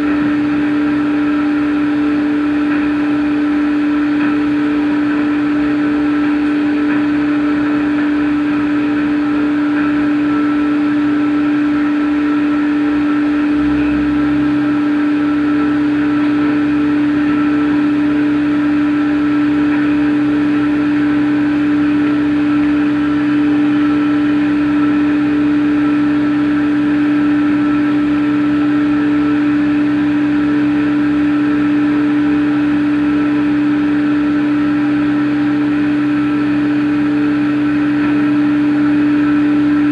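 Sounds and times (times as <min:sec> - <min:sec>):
machine low-pitched hum: 0:00.0 - 0:39.9
deep rumble: 0:12.6 - 0:18.2.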